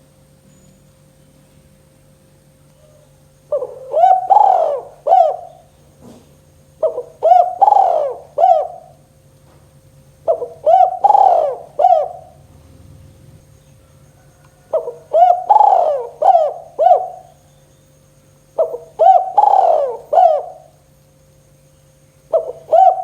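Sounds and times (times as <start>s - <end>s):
dove cooing: 2.8s - 9.2s, 9.8s - 17.6s, 18.6s - 21.0s, 22.2s - 23.0s.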